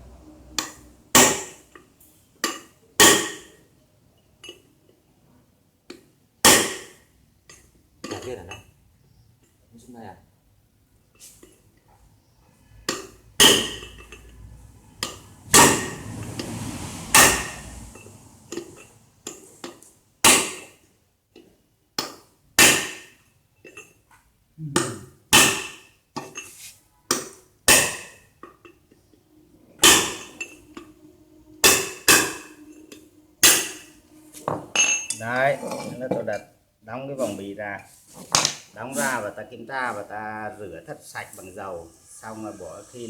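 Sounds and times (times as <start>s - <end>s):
hammer blows on metal: 29.8s - 35.4s.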